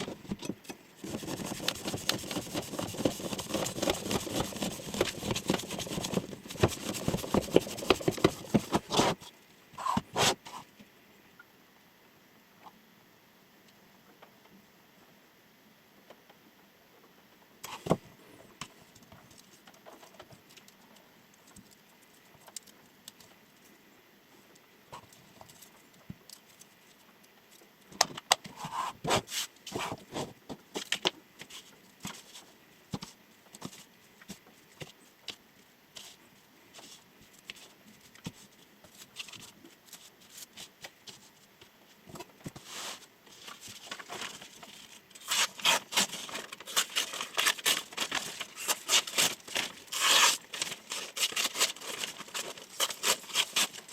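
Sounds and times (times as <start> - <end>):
knife scraping: 49.9 - 50.4.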